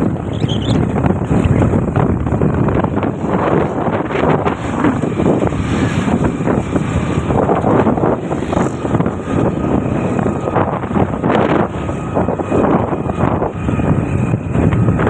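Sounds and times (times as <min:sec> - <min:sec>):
motorbike and road noise: 0:00.0 - 0:15.0
wind buffeting microphone: 0:00.0 - 0:15.0.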